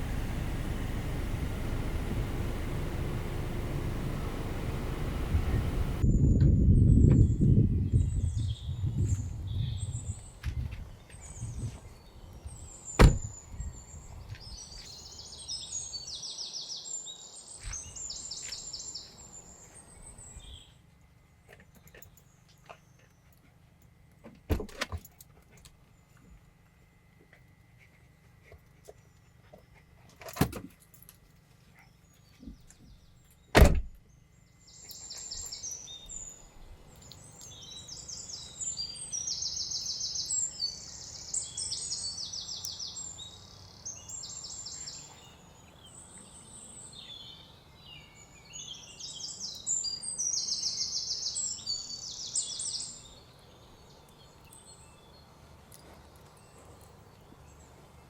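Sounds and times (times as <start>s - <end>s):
sharp thuds: 13.0s - 13.4s, 33.6s - 34.0s.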